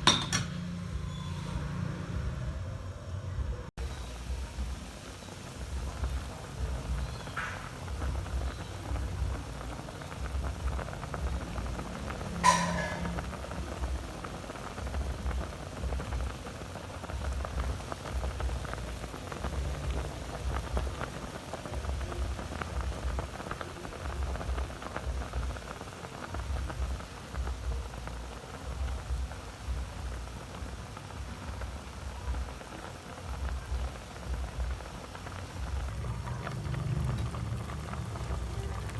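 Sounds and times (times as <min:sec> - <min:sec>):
utensil clinking on pan: 0:00.0 - 0:00.7, 0:12.4 - 0:13.2
sauce bubbling and sizzling: 0:03.8 - 0:38.9.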